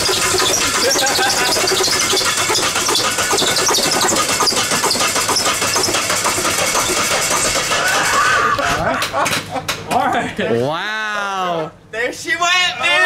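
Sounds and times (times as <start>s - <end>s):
engine running uneven: 0.0s - 8.4s.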